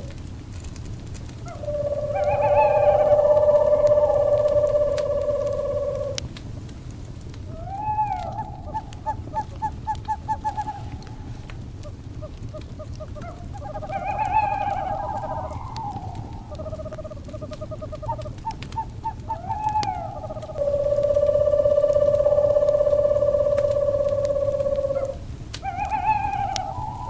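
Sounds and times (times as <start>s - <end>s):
fire crackling: 0.0s - 27.0s
low fire noise: 0.0s - 27.0s
owl calling: 1.4s - 6.3s, 7.5s - 27.0s.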